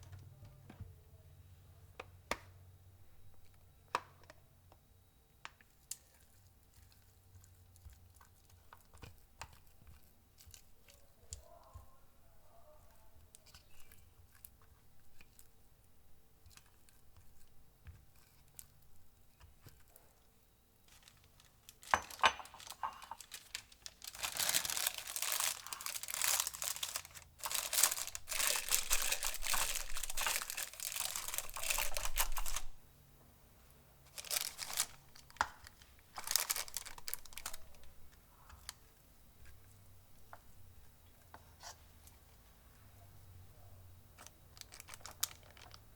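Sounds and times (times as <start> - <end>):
faint clicks and taps: 0.0 - 0.9, 16.4 - 24.8
crinkling tearing noise: 20.8 - 32.8, 34.1 - 38.8, 44.2 - 45.9.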